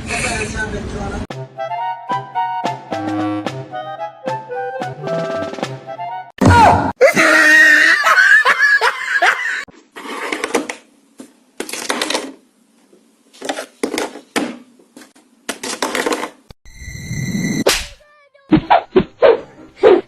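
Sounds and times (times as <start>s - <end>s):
person laughing: 7.0s - 9.7s.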